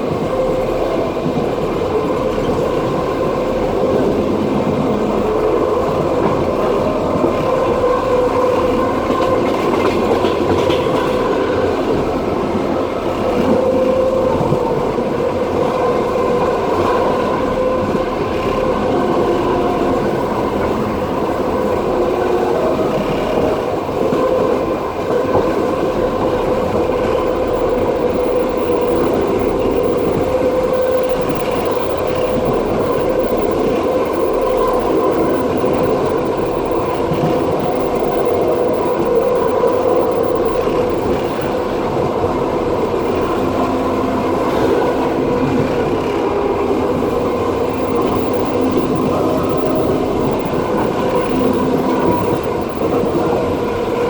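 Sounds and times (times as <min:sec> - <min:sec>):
train wheels rumbling on rails: 0:00.0 - 0:54.0
ringing hum: 0:26.1 - 0:54.0.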